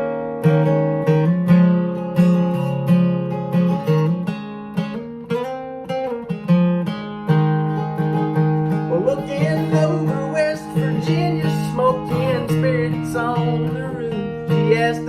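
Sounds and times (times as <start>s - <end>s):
strummed acoustic guitar: 0.0s - 15.0s
person singing: 8.7s - 15.0s.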